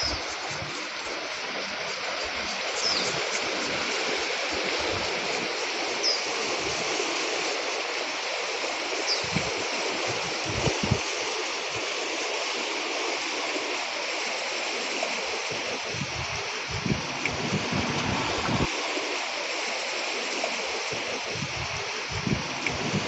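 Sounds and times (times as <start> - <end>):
rough sea surf: 8.0 - 11.3, 15.1 - 23.0
wind buffeting microphone: 9.2 - 11.1, 15.7 - 19.0, 21.2 - 23.0.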